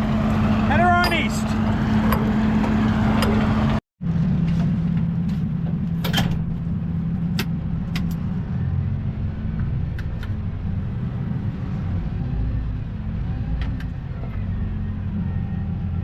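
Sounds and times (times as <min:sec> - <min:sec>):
truck diesel engine running: 0:00.0 - 0:11.4.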